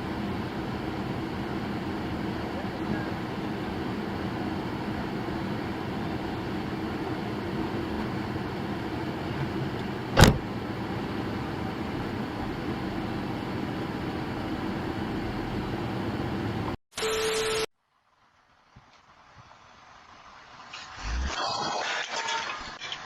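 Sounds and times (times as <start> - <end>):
car road and engine noise: 0.0 - 16.8
short sharp bang: 10.2 - 10.4.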